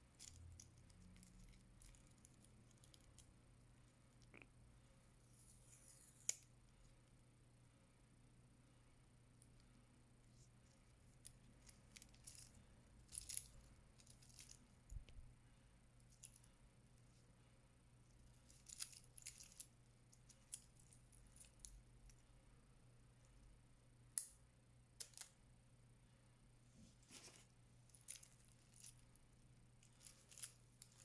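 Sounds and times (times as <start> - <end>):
metal watch bracelet clinking: 18.6 - 20.7.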